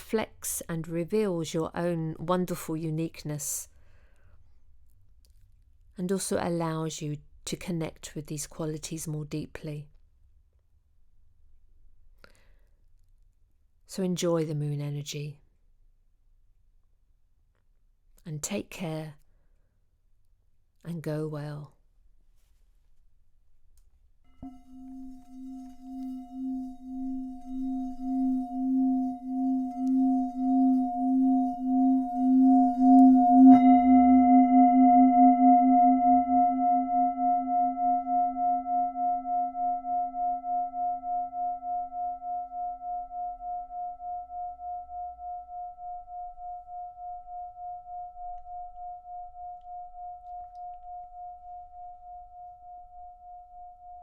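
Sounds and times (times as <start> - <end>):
singing bowl ringing: 24.3 - 54.0.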